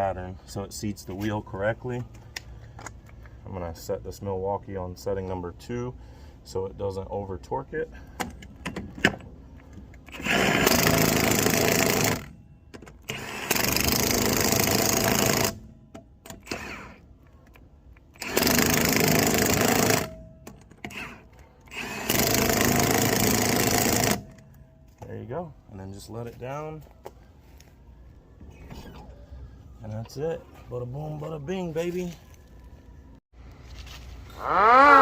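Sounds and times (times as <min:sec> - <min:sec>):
impact wrench hammering lug nuts: 0:10.1 - 0:17.0, 0:18.1 - 0:24.6.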